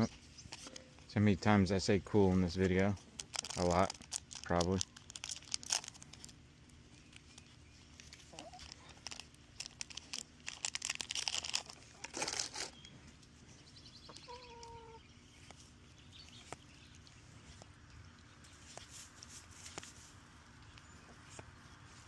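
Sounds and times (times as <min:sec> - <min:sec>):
trading cards being handled: 0:00.0 - 0:01.1, 0:02.1 - 0:13.5, 0:14.2 - 0:22.0
foil wrapper crinkling: 0:02.4 - 0:13.0.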